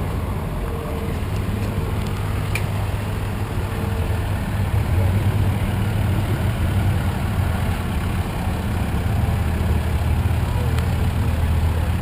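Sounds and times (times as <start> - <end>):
heavy engine idling: 0.0 - 12.0.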